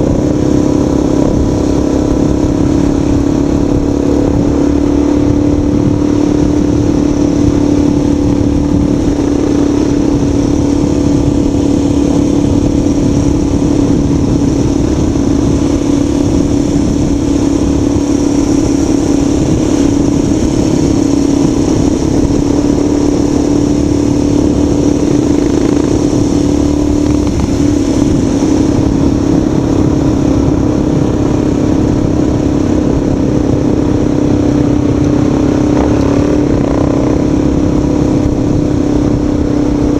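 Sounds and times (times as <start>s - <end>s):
vehicle engine hum: 0.0s - 39.9s
wind and road noise: 0.0s - 39.9s.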